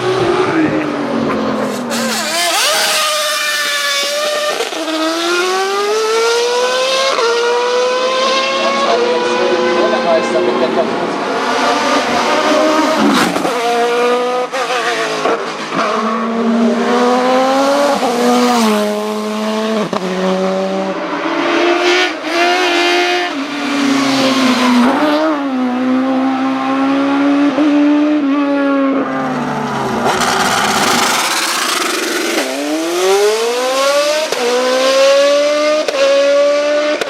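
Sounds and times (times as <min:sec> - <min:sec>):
race car engine revving through gears: 0:00.0 - 0:37.0.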